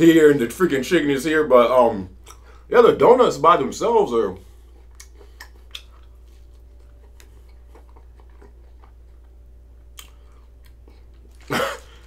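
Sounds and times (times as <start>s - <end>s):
steady low hum: 0.0s - 12.0s
soft chewing: 2.1s - 2.7s, 4.3s - 12.0s
faint mouth clicks: 4.9s - 6.1s, 10.0s - 10.4s.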